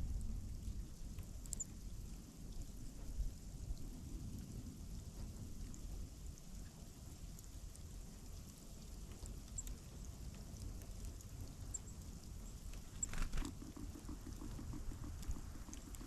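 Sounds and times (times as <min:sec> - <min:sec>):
wind rumble on microphone: 0:00.0 - 0:16.0
small birds chirping: 0:11.6 - 0:16.0
brief rustle: 0:12.7 - 0:13.6.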